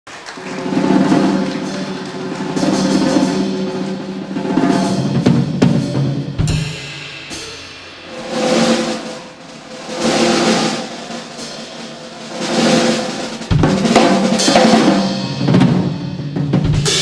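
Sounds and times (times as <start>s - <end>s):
drum kit rolls: 0.1s - 17.0s
jazz combo playing: 0.4s - 17.0s.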